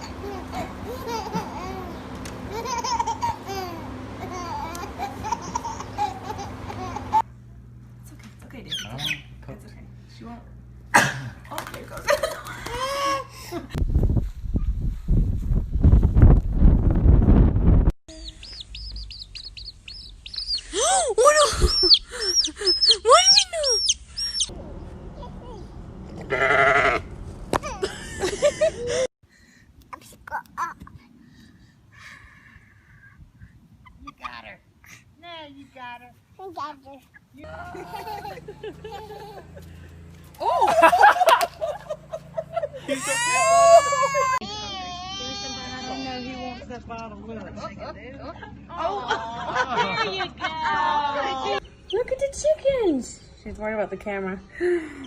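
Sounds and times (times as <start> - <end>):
steady low hum: 0.0 - 45.0
high chirping calls: 8.7 - 9.4, 18.1 - 24.5, 51.6 - 53.5
small child babbling and laughing: 18.1 - 18.6, 20.7 - 24.5, 25.2 - 25.7, 29.9 - 31.1
goat bleating: 26.2 - 27.0.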